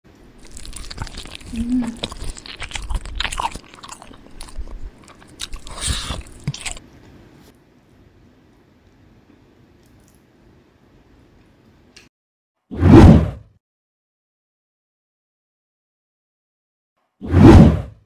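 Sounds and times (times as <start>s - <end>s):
crunchy chewing: 0.3s - 6.8s.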